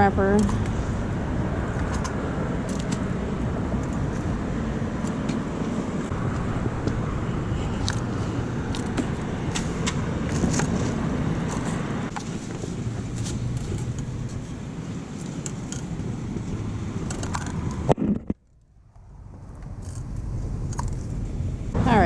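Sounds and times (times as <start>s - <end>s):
car traffic rumble: 0.0s - 22.0s
sharp clicks and ticks: 7.7s - 12.3s, 15.2s - 21.2s.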